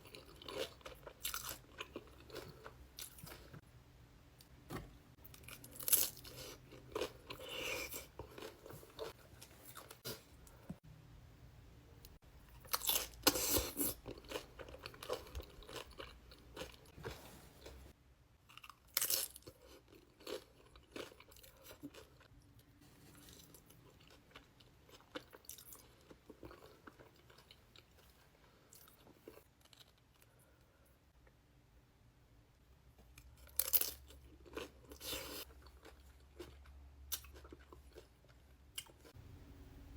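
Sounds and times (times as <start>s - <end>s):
person chewing crunchy food: 0.0s - 3.6s, 5.2s - 10.6s, 12.5s - 17.9s, 18.5s - 22.3s, 23.0s - 30.4s, 33.2s - 39.1s.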